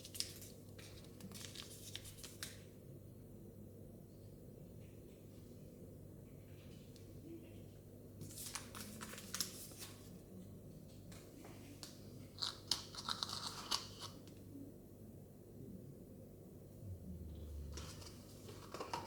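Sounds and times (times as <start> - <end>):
plastic packaging crinkling and tearing: 12.4 - 14.2.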